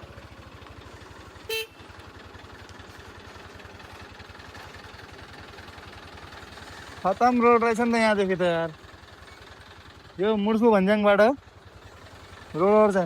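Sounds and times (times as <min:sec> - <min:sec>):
motorcycle engine running: 0:00.0 - 0:13.0
horn beep: 0:01.5 - 0:01.8.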